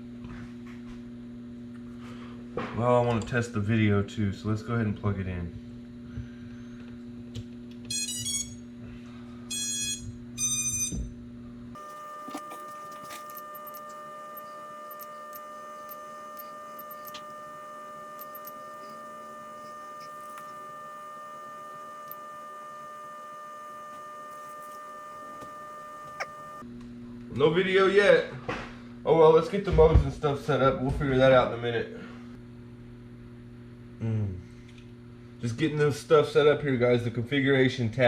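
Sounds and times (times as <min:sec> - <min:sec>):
drone motor startup beeps: 0:11.8 - 0:26.6
steady high-pitched tone: 0:11.8 - 0:26.6.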